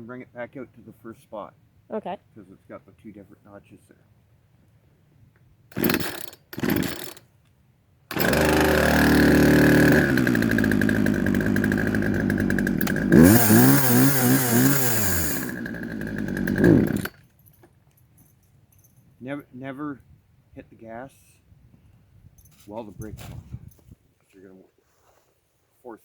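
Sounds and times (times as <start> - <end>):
chainsaw engine revving: 5.7 - 7.2, 8.1 - 17.2
chainsaw pull cord: 5.7 - 7.3, 8.1 - 17.2.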